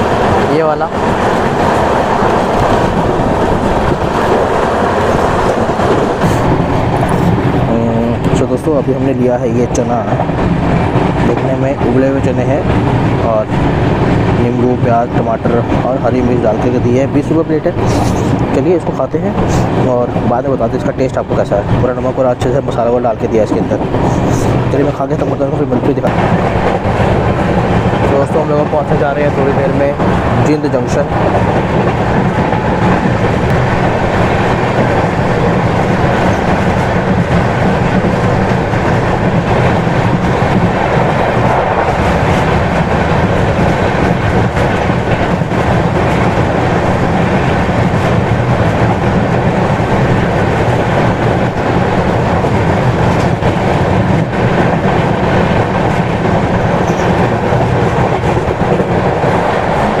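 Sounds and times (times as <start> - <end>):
train wheels rumbling on rails: 0.0 - 60.0.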